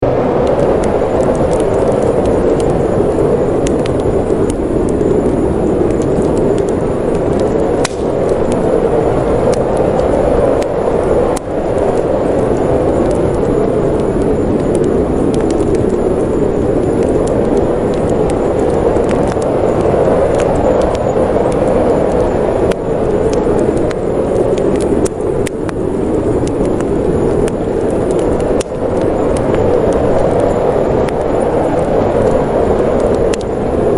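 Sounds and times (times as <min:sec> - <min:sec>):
snowstorm wind blowing: 0:00.0 - 0:33.9
wood fire crackling: 0:00.0 - 0:33.9.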